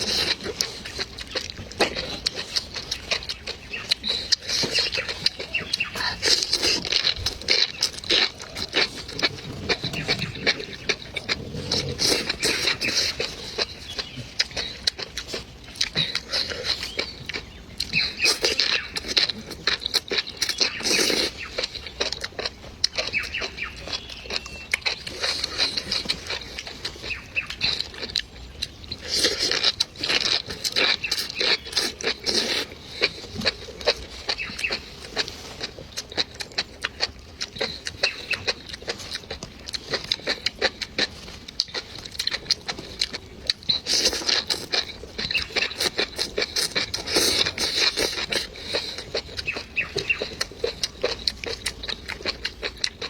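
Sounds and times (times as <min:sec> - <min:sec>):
wet chewing: 0:00.0 - 0:53.0.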